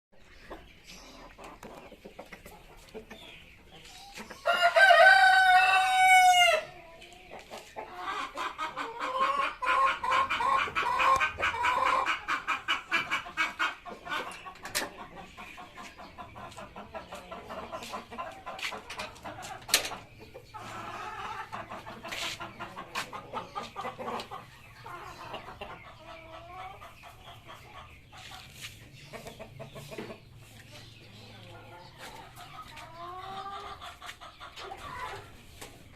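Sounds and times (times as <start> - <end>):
hens clucking: 0.2 - 35.9
rooster crowing: 4.4 - 6.6.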